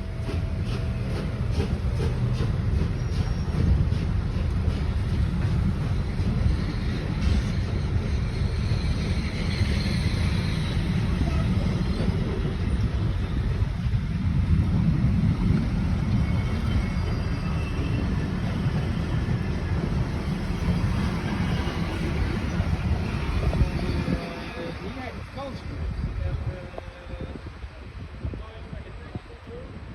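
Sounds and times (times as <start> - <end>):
train passing with low rumble: 0.0 - 29.9.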